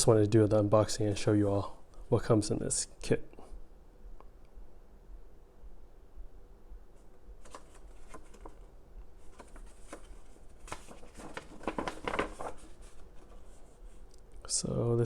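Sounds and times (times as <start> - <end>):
paper rustling: 7.4 - 14.3.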